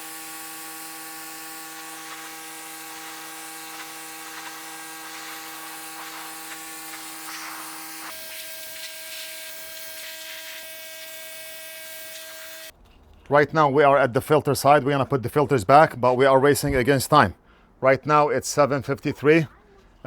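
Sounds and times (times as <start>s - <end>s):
electric motor buzzing: 0.0s - 12.7s.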